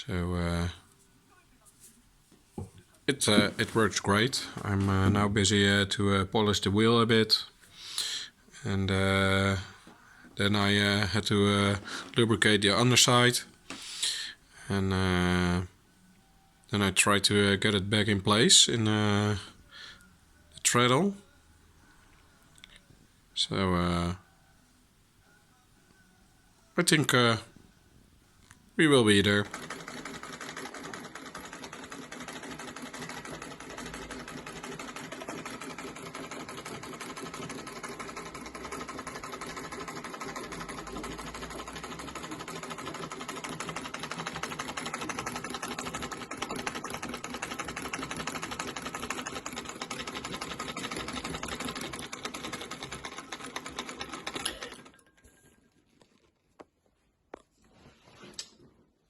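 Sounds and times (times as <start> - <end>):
treadle sewing machine clattering: 29.2 - 55.1.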